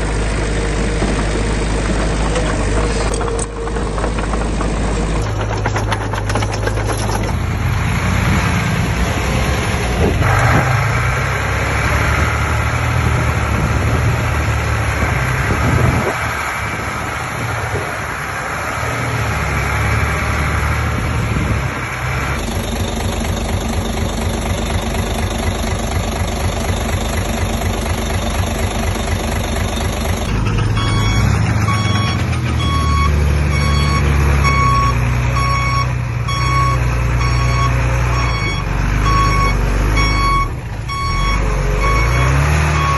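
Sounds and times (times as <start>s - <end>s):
heavy diesel engine running: 0.0s - 42.9s
reversing alarm beeping: 27.9s - 42.9s.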